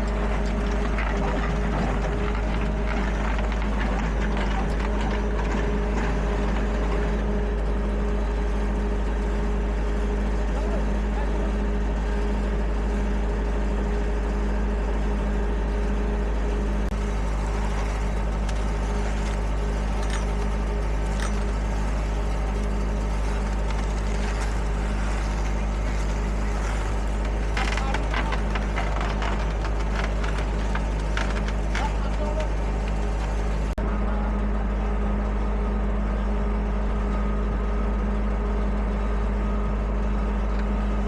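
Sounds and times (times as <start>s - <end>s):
diesel machinery running: 0.0s - 41.0s
clattering and scraping knocks: 16.9s - 33.8s.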